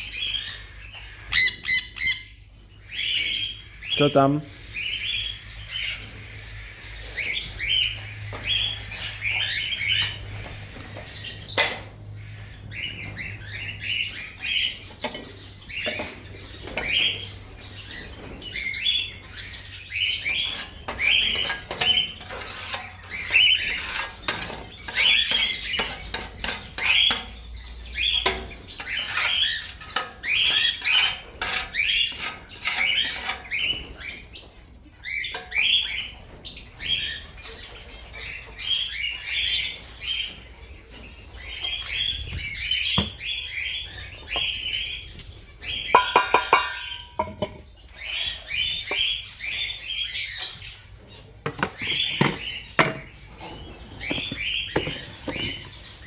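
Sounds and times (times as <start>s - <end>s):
parrots chirping: 0.0s - 10.4s, 41.3s - 56.0s.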